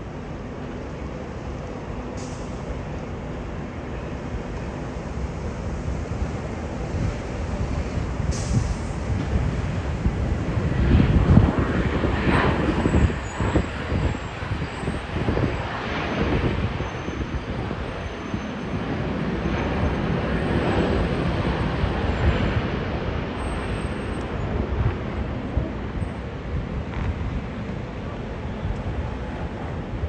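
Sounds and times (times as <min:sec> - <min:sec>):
vehicle rumble: 0:00.0 - 0:30.0.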